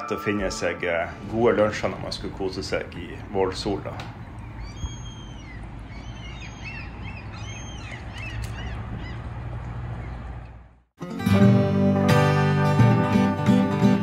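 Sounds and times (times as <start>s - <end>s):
birds calling: 1.3s - 10.8s
acoustic guitar strumming: 11.0s - 14.0s.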